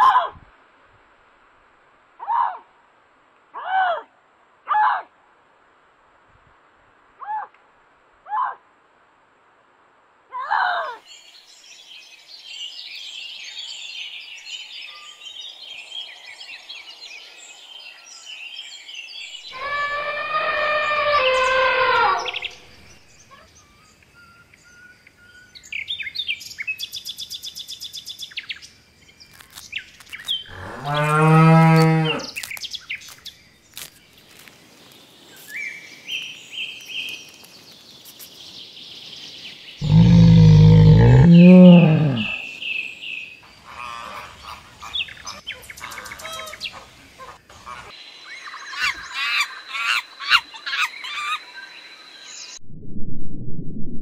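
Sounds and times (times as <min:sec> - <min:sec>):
birds chirping and trilling: 0:11.0 - 0:52.6
long low animal calls: 0:19.5 - 0:22.9, 0:39.8 - 0:42.6.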